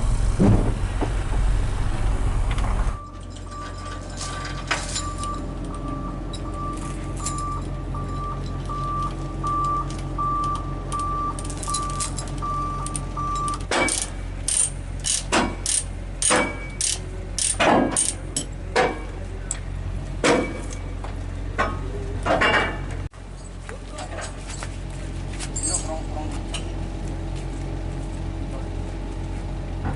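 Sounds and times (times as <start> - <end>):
truck diesel engine running: 0.0 - 29.9
sharp metallic clanks: 11.0 - 19.6, 20.2 - 20.9.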